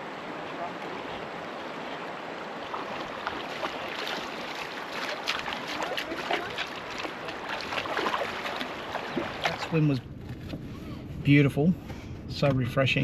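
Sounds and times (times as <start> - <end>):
sharp water splashes: 0.0 - 10.0
water washing: 0.0 - 10.1.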